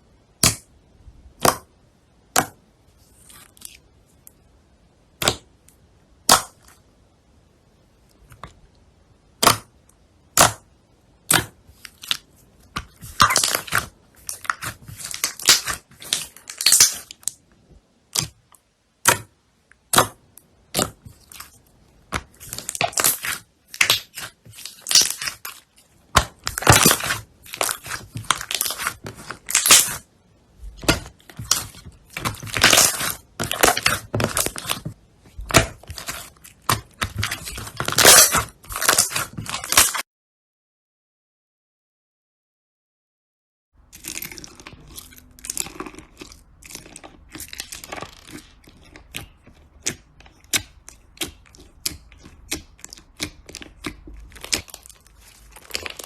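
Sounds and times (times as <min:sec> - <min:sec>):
slime squeezed crackling: 0:12.9 - 0:17.4, 0:22.2 - 0:30.0, 0:30.7 - 0:40.0, 0:43.9 - 0:56.0.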